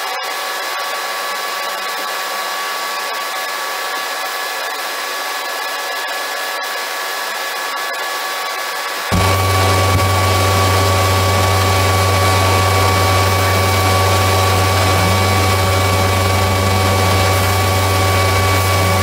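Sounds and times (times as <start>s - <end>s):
power tool motor whirring: 9.1s - 19.0s.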